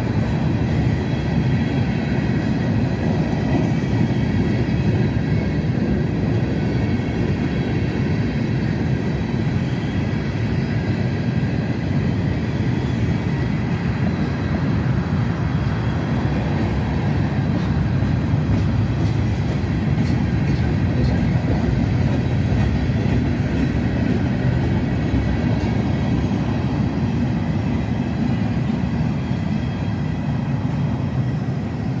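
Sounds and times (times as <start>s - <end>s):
freight train cars rolling: 0.0s - 32.0s
steel wheels clicking on rail: 15.6s - 29.8s.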